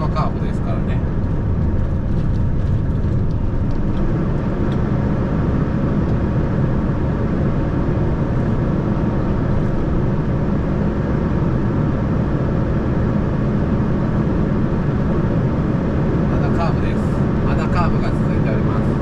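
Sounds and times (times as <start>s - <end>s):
truck diesel engine drone: 0.0s - 19.0s.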